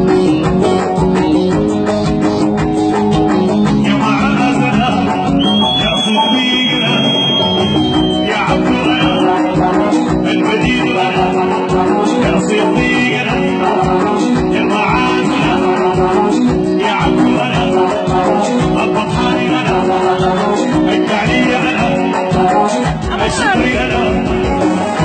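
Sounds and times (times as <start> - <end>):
dance music with drum beat: 0.0 - 25.0
held high note: 5.4 - 8.4.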